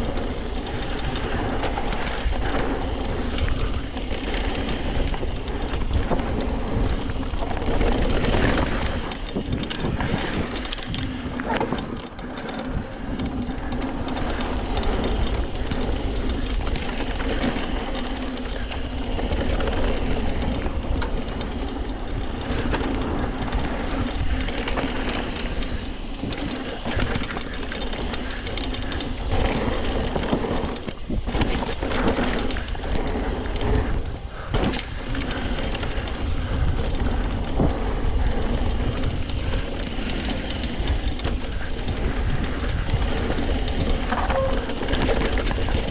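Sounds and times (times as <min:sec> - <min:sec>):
bike chain and frame clattering: 0:10.3 - 0:16.3.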